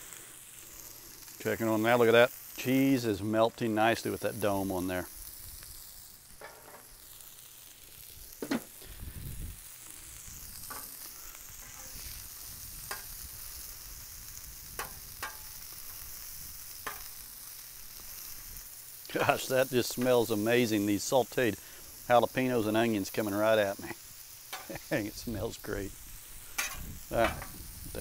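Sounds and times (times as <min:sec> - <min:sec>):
food sizzling on griddle: 0:00.0 - 0:28.0.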